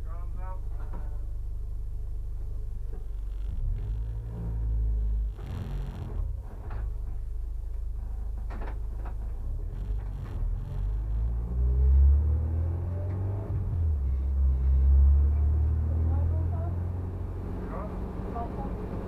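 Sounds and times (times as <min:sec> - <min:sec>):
car engine at low revs: 0:00.0 - 0:19.0.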